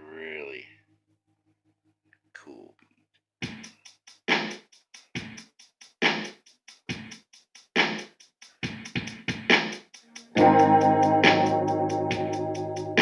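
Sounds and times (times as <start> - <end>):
hi-hat ticks: 3.4 - 10.4
slow drum machine beat: 3.4 - 13.0.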